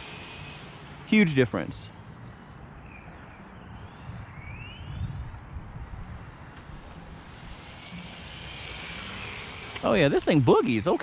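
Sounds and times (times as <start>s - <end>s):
electric toy car motor whining: 0.0s - 0.8s, 7.1s - 10.1s.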